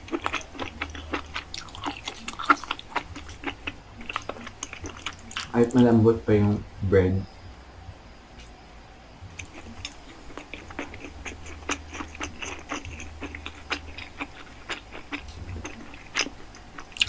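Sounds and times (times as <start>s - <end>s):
wet chewing mouth sounds: 0.0s - 5.6s, 9.3s - 17.0s.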